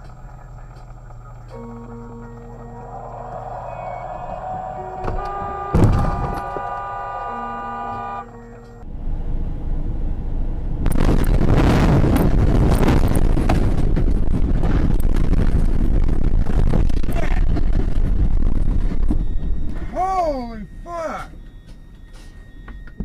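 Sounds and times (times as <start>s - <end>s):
road and wind noise inside car: 0.0s - 23.0s
car horn: 1.5s - 8.8s.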